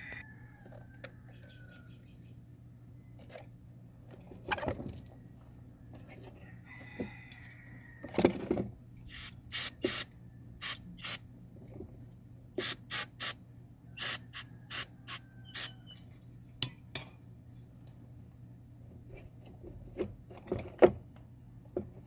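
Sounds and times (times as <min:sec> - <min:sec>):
short hissing spray bursts: 0:09.1 - 0:11.2, 0:12.6 - 0:13.4, 0:14.0 - 0:15.8.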